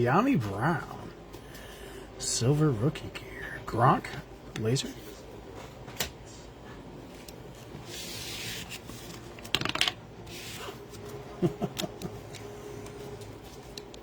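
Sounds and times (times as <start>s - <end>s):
trading cards rustling slide: 4.6s - 9.6s, 10.2s - 14.0s.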